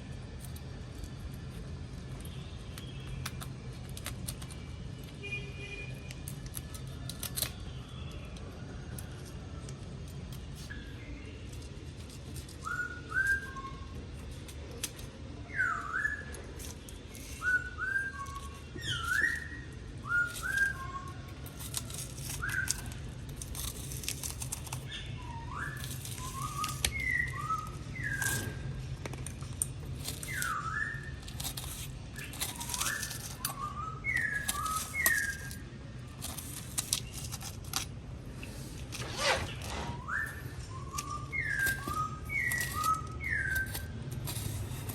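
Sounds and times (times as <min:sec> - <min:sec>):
short whistled chirps: 0:38.5 - 0:43.9.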